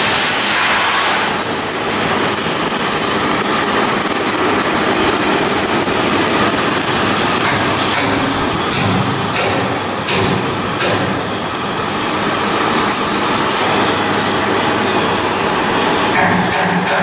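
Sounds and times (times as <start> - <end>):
heavy machinery running: 0.0 - 17.0
machinery knocks: 7.3 - 11.5, 16.1 - 17.0.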